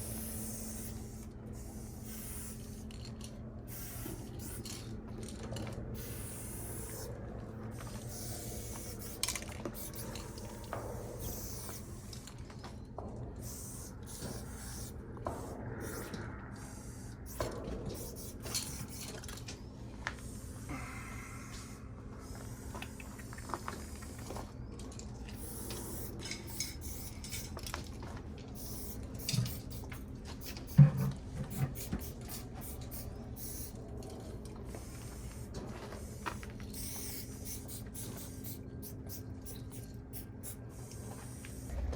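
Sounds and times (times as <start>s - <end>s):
spray paint hissing: 0.0s - 2.9s, 3.7s - 4.8s, 6.0s - 7.1s, 8.0s - 12.2s, 13.4s - 19.2s, 25.4s - 27.6s, 28.6s - 33.8s, 34.8s - 41.9s
steady low hum: 0.0s - 41.9s.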